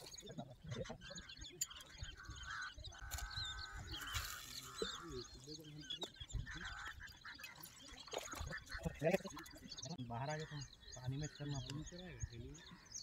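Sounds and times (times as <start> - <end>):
birds chirping: 0.0 - 13.0
longer lower bird calls: 0.0 - 13.0.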